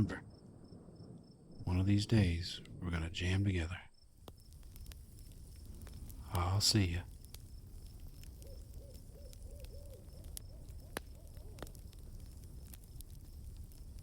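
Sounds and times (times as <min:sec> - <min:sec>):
crickets chirring: 0:00.0 - 0:14.0
owl hooting: 0:08.3 - 0:11.8.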